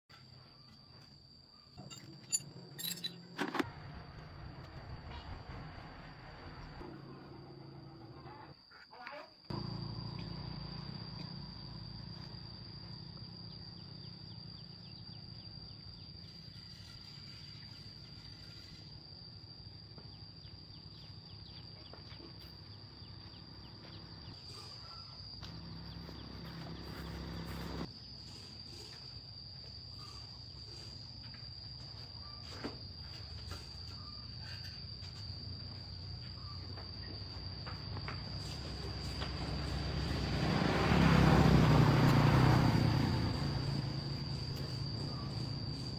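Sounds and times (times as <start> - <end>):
insects chirring: 0.1 - 45.9.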